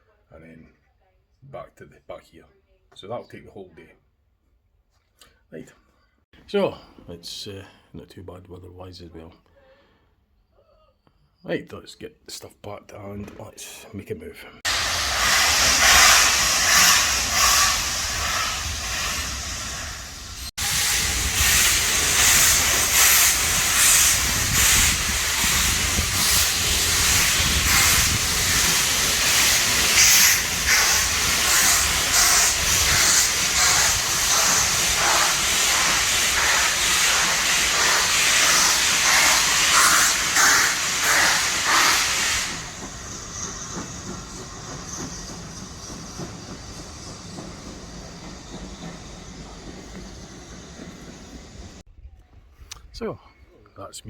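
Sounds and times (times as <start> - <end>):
locomotive exhaust chuffs: 14.7 - 51.8
steam hiss: 14.7 - 51.8.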